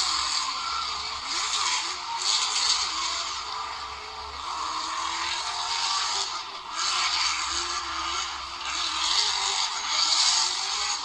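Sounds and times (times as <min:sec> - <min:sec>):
high-revving car engine: 0:00.0 - 0:11.0.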